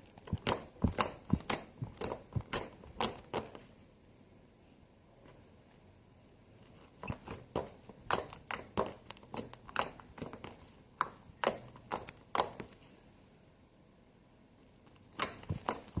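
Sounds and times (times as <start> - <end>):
frozen slime crackling and popping: 0.0 - 3.6, 8.0 - 12.8, 15.0 - 16.0.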